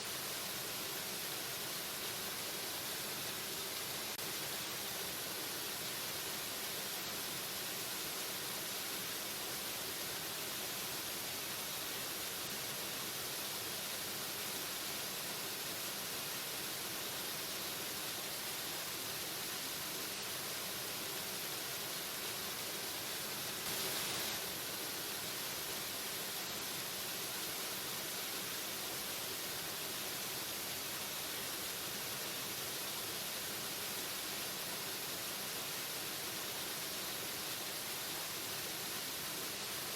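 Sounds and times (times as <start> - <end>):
waterfall rushing: 23.7 - 24.4.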